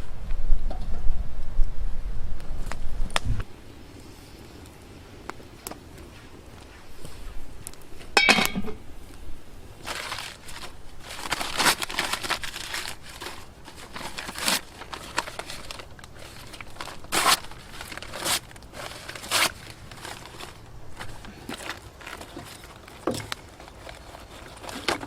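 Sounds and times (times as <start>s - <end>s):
rustling and crinkling: 2.4s - 25.0s
dry crunches and scrapes: 9.0s - 25.0s.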